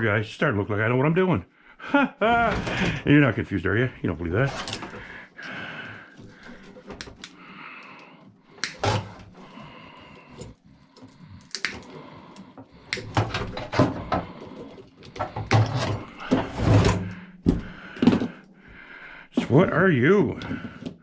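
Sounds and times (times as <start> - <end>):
metal parts knocking and clanking: 4.4 - 5.2, 13.0 - 14.4, 15.0 - 18.4.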